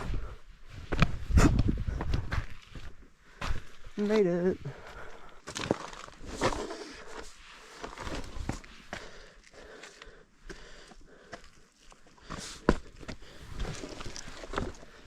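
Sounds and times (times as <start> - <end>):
footsteps on rough trail: 0.0 - 15.0.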